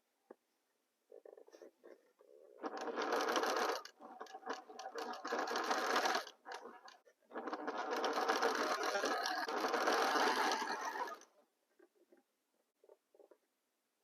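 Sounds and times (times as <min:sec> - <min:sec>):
sewing machine stitching: 0:02.4 - 0:11.3.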